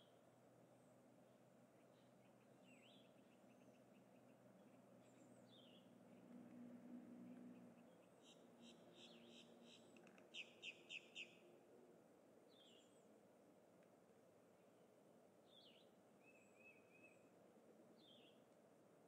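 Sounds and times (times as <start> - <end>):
faint outdoor hiss: 0.0 - 19.0
wild birds chirping: 1.2 - 6.4, 7.3 - 11.5, 12.5 - 13.2, 15.4 - 18.5.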